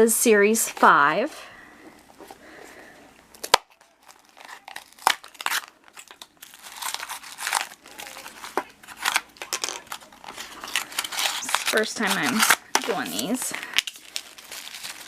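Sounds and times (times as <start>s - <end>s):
plastic wrapper crinkling: 3.3s - 15.0s
plastic wrapper ripping: 3.3s - 15.0s.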